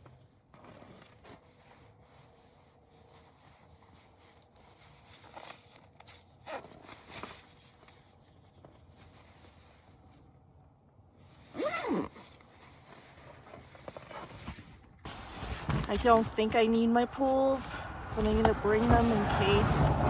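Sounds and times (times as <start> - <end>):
clothing and gear rustling: 0.0 - 20.0
zipper pulled: 4.0 - 8.0, 11.3 - 16.4.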